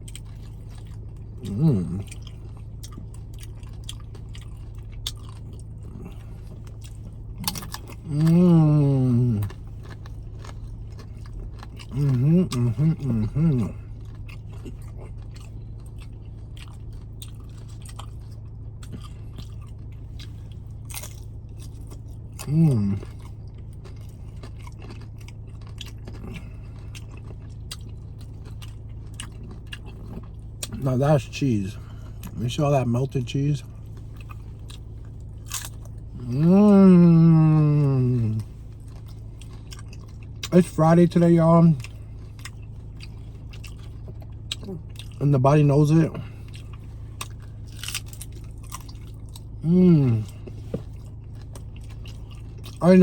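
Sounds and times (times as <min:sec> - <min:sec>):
chewing crunchy chips: 0:00.0 - 0:53.0
steady low hum: 0:00.0 - 0:53.0
person humming: 0:01.5 - 0:02.0, 0:08.1 - 0:09.5, 0:36.2 - 0:38.4, 0:49.6 - 0:50.4.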